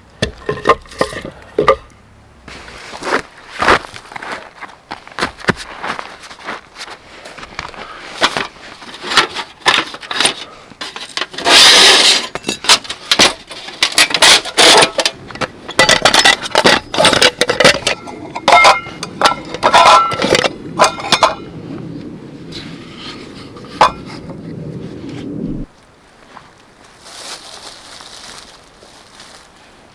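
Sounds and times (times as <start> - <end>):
camp gear knocking: 12.6 - 21.4.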